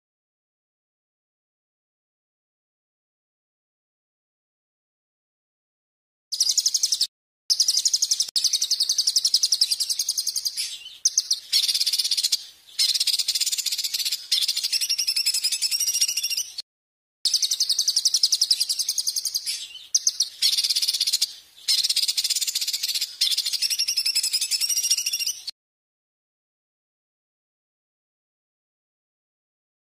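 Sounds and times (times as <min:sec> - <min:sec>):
songbird trilling: 0:06.4 - 0:16.6, 0:17.3 - 0:25.5.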